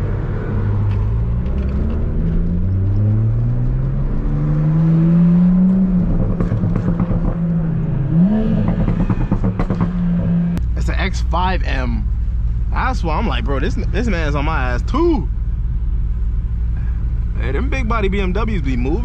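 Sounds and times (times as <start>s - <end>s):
turbocharged car engine revving: 0.0s - 11.9s
engine crackles: 0.0s - 19.0s.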